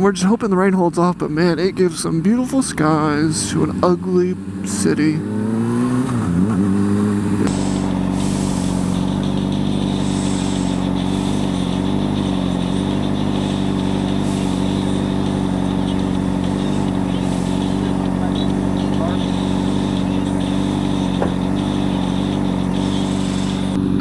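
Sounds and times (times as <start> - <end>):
motorcycle engine: 0.0 - 24.0
rushing noise: 5.5 - 24.0.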